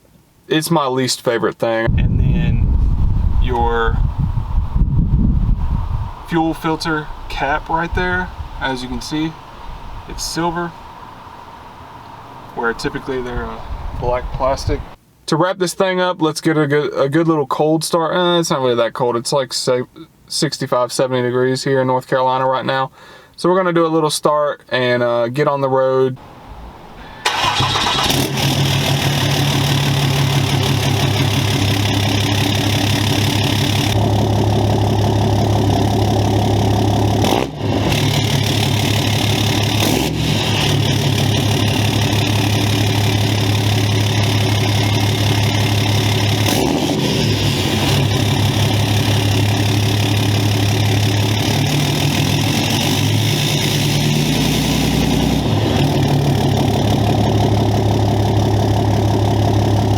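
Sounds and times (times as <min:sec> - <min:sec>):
diesel engine starting and idling: 0:27.0 - 0:59.9.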